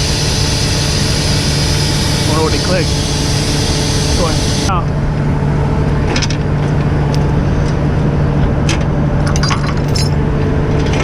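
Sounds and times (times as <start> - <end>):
truck engine idling: 0.0 - 8.0.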